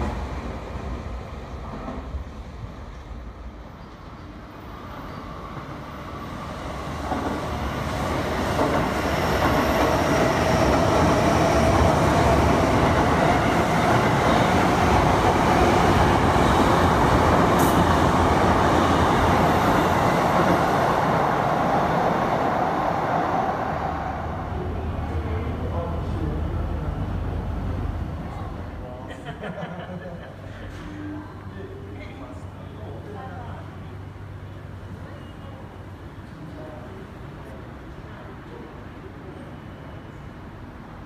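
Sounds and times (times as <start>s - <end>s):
train wheels on rails: 6.2s - 23.8s.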